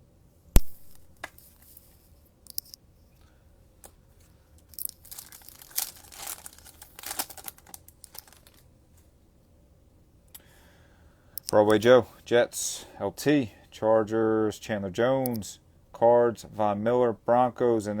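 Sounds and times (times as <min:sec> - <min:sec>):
plastic wrapper tearing and crinkling: 0:04.8 - 0:08.6.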